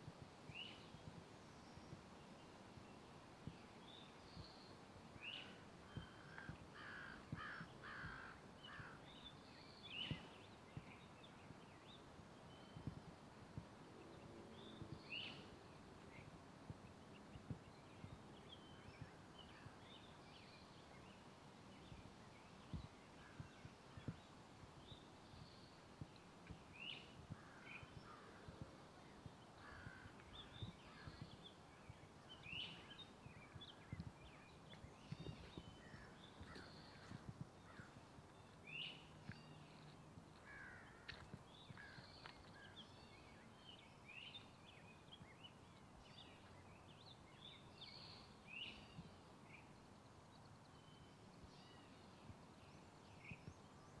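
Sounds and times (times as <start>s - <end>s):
footsteps on forest trail: 32.7s - 43.1s.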